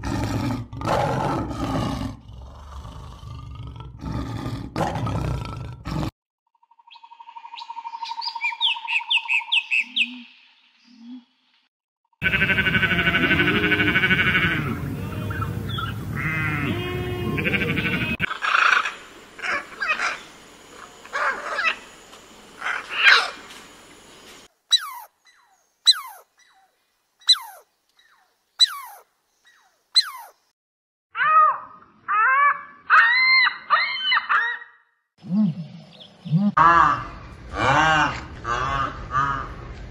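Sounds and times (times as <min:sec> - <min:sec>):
warbling bleat-like call: 0:12.2 - 0:18.3
high chattering calls: 0:12.2 - 0:22.0, 0:24.7 - 0:30.5
lorikeet screeches: 0:24.7 - 0:25.1, 0:25.9 - 0:26.2, 0:27.3 - 0:27.6, 0:28.6 - 0:29.0, 0:30.0 - 0:30.3.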